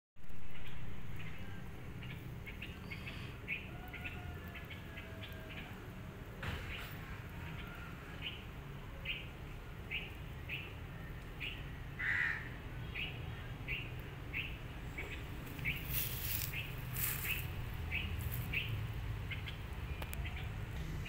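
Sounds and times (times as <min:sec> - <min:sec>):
small bird chirping: 0:13.0 - 0:20.6.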